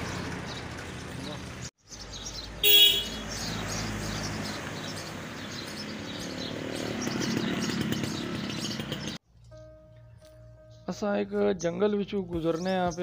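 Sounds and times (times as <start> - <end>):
vehicle engine running: 0.0 - 9.2
birds chirping: 0.0 - 13.0.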